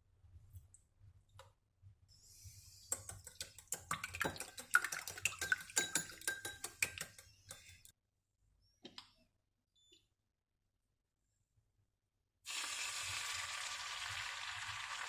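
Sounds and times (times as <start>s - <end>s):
utensils clinking against dishes: 5.3s - 7.8s.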